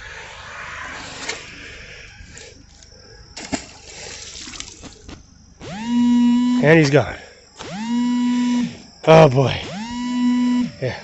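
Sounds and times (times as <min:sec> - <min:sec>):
creek water splashing: 0:03.4 - 0:05.2.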